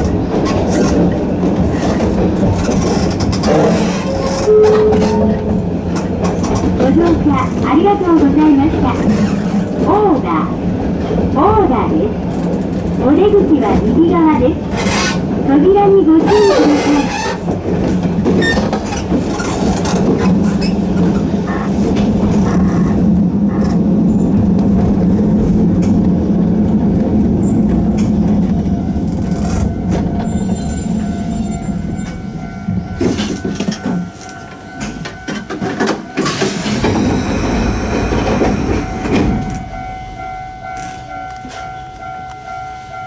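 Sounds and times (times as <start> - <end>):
wheels clicking over rail joints: 0.0 - 10.4, 16.2 - 30.4, 31.6 - 42.4
train traction motors humming: 0.0 - 43.0
steady tone: 36.9 - 43.0.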